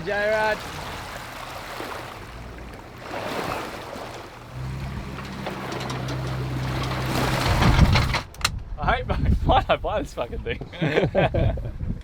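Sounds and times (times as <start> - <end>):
water: 0.0 - 8.5
wind: 0.0 - 12.0.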